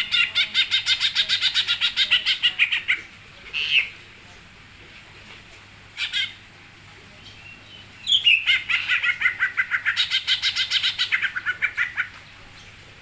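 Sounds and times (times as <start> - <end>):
songbird chattering trill: 0.0 - 4.0, 7.2 - 12.1.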